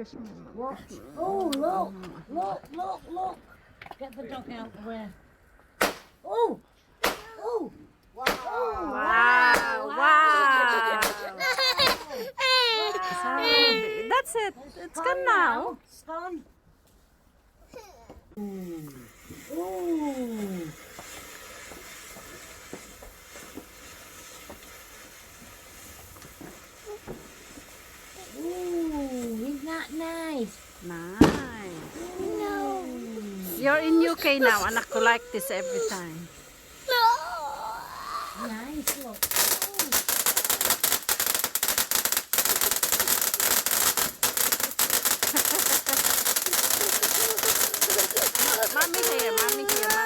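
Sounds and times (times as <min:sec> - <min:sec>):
firework hissing and crackling: 0:02.6 - 0:06.2, 0:06.9 - 0:15.6, 0:17.7 - 0:50.0.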